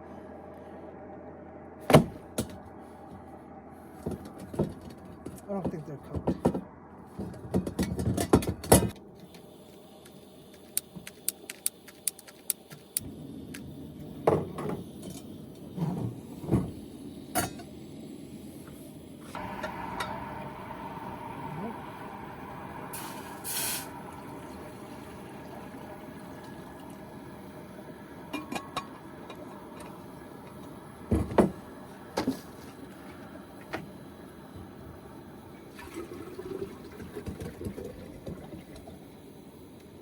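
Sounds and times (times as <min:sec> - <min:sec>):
water pouring into a pot: 0:19.4 - 0:29.8, 0:35.6 - 0:39.1.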